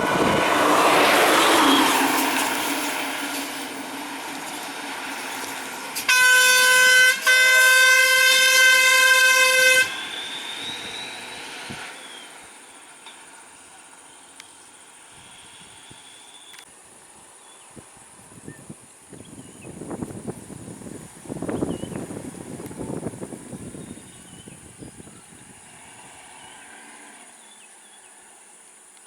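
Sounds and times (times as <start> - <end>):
vehicle engine: 0.0 - 16.7, 19.8 - 28.7
road noise: 0.0 - 29.0
vehicle horn blasts: 6.1 - 11.6.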